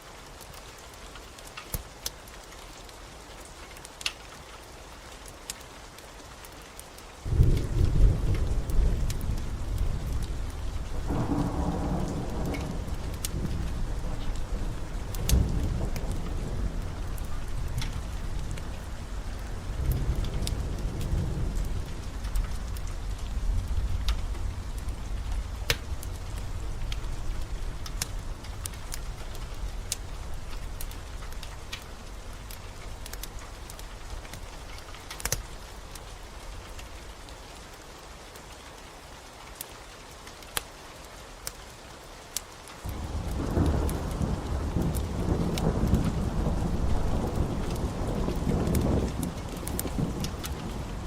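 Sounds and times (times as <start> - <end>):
steady rain: 0.0 - 51.0
wood fire crackling and popping: 0.2 - 38.8, 39.4 - 51.0
low rumble of thunder: 7.2 - 37.3, 42.9 - 51.0
fireplace crackling pops: 23.7 - 36.9, 44.9 - 50.7.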